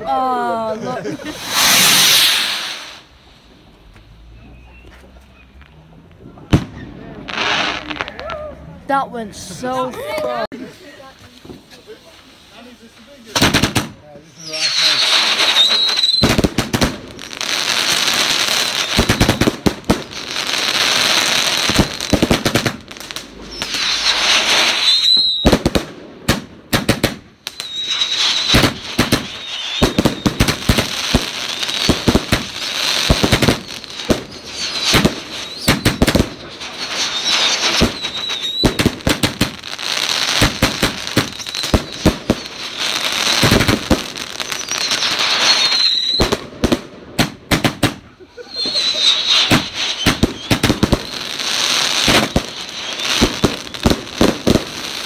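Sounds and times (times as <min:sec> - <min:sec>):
firework crackling: 0:00.0 - 0:05.8, 0:06.4 - 0:55.0
high wavering firework whistle: 0:01.3 - 0:03.1, 0:14.4 - 0:16.4, 0:23.4 - 0:25.6, 0:27.5 - 0:39.2, 0:41.2 - 0:43.5, 0:44.4 - 0:46.4, 0:48.4 - 0:53.9.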